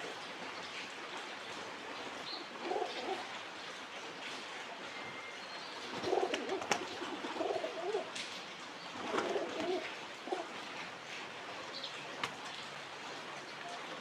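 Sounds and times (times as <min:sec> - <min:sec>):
pigeons cooing: 0:02.5 - 0:03.4, 0:05.9 - 0:08.2, 0:09.0 - 0:10.6.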